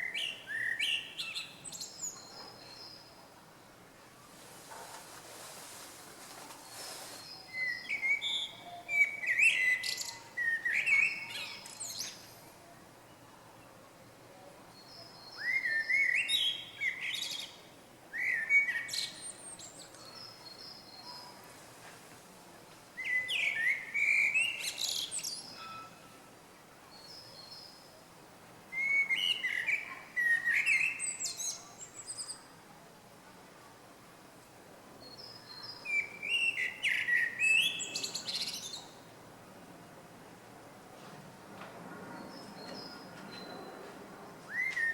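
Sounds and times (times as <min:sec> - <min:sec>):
songbird chirping and whistling: 0:07.2 - 0:12.1, 0:23.0 - 0:25.6, 0:28.8 - 0:32.3, 0:35.8 - 0:38.9, 0:44.5 - 0:44.9.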